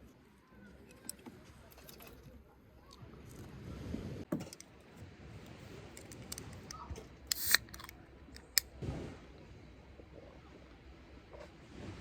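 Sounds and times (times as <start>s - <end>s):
sharp clicks and snips: 6.0s - 8.7s.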